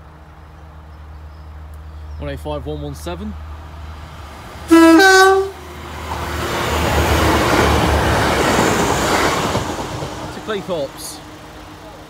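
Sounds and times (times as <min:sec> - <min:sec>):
train wheel and diesel engine noise: 0:00.0 - 0:12.0
two-tone train horn: 0:04.7 - 0:05.6.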